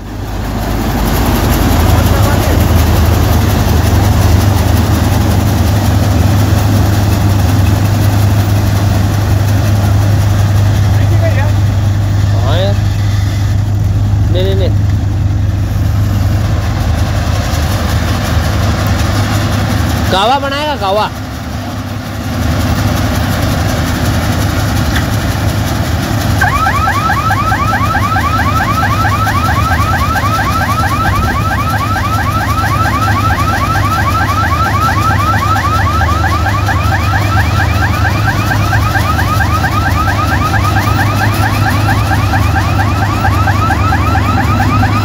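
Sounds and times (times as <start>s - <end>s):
combine harvester running: 0.0s - 45.0s
electronic alarm chirping: 26.4s - 45.0s.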